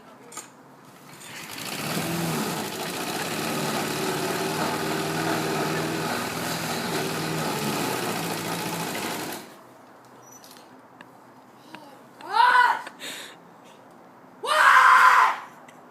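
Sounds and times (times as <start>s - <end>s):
lawn mower engine running: 1.1s - 9.6s.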